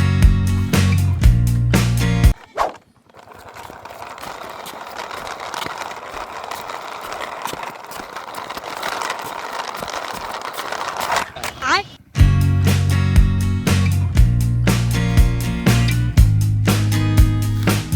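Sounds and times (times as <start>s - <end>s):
toy cars whirring rattle: 2.4s - 11.8s
small clicks: 2.8s - 11.7s.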